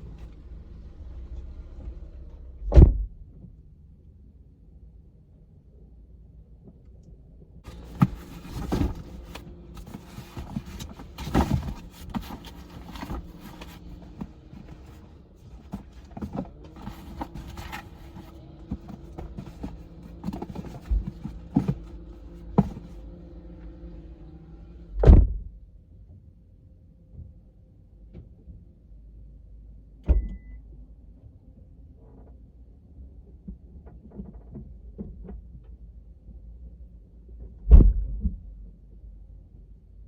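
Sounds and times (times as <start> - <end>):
knocks and thumps: 7.7 - 23.0.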